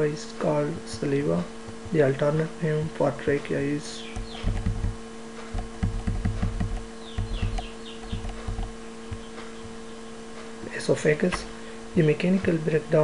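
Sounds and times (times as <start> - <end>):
electrical hum: 0.0 - 13.0
birds chirping: 3.4 - 12.3
dull low thumps: 4.1 - 10.5.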